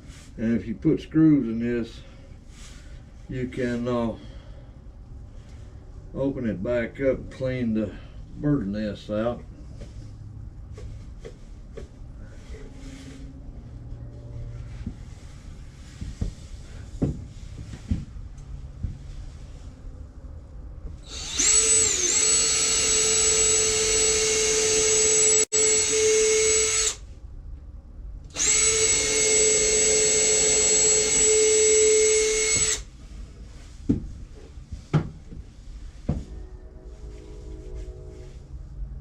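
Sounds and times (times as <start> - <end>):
electric drill whining: 21.0 - 27.0, 28.3 - 32.9.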